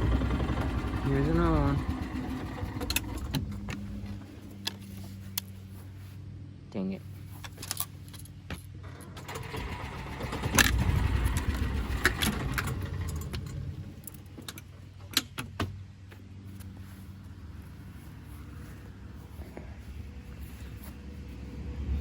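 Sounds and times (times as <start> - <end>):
small engine running: 0.0 - 4.3, 8.8 - 14.4
metallic rattling: 7.4 - 15.8.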